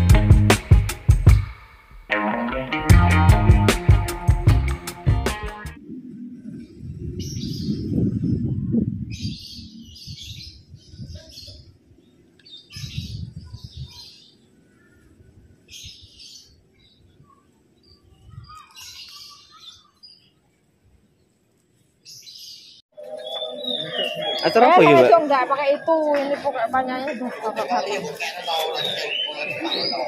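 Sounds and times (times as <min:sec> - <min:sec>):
small birds chirping: 0:06.0 - 0:25.9, 0:27.6 - 0:30.0.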